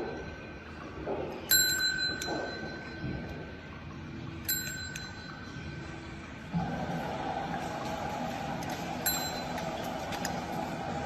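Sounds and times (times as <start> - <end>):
small bell ringing: 1.5 - 3.0, 4.4 - 5.7, 9.0 - 9.8.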